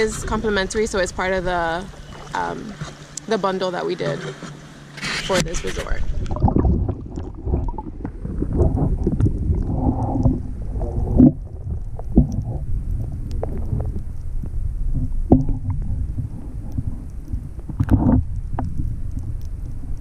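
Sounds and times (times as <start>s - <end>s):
wind on microphone: 0.0s - 4.2s, 5.0s - 20.0s
water rumble: 0.0s - 20.0s.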